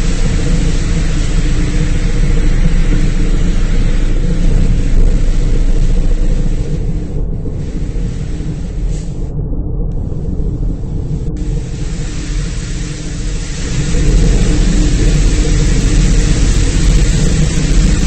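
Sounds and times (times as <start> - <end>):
spraying water rushing: 0.0 - 7.0, 11.4 - 18.0
car wash machinery rumble: 0.0 - 18.0.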